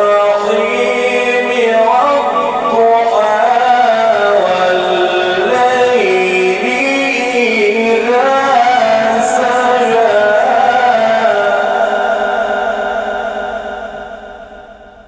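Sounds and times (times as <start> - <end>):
man reciting melodically: 0.0 - 14.4.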